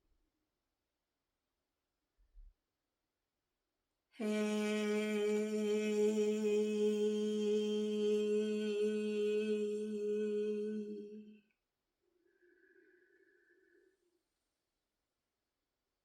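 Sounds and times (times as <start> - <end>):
woman sustaining a long vocal tone: 4.2 - 11.4.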